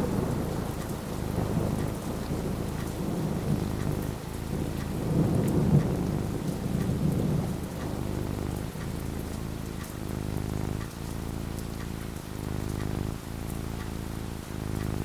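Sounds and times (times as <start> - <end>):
low rumble of thunder: 0.0 - 11.0
steady rain falling: 0.0 - 15.0.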